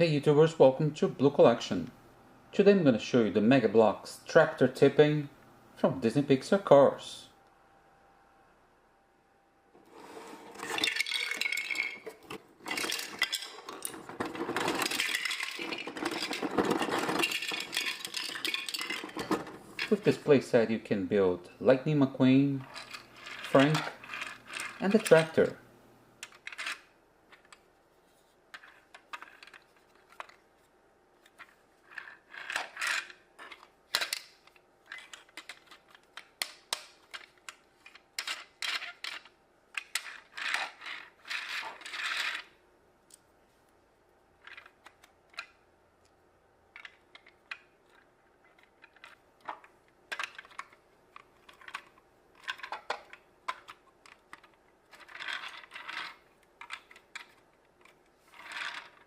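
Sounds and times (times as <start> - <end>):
plastic building blocks clicking: 10.8 - 20.0, 46.7 - 59.0.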